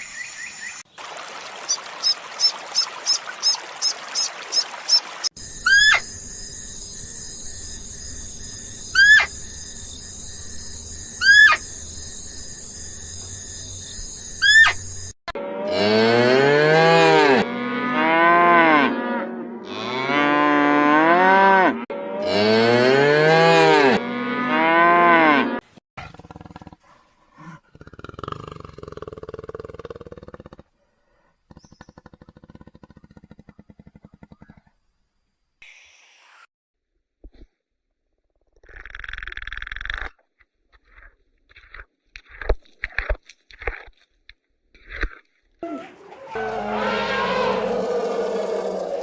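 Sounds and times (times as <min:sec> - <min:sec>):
cow mooing: 0:15.4 - 0:25.6, 0:45.6 - 0:49.0.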